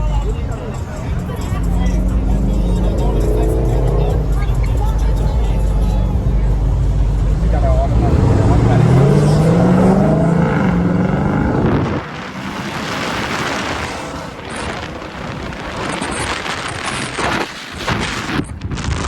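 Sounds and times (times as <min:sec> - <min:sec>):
loud rushing noise: 0:00.9 - 0:19.0
car engine revving hard: 0:01.2 - 0:18.4.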